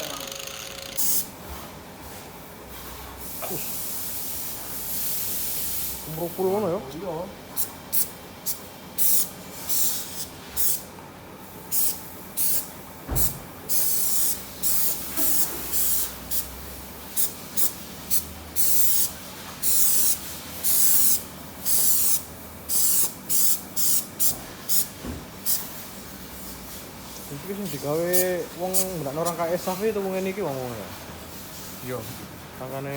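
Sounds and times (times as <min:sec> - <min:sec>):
spray paint can hissing: 0:01.0 - 0:01.3, 0:07.9 - 0:10.9, 0:11.7 - 0:12.7, 0:13.7 - 0:25.7, 0:28.1 - 0:29.5.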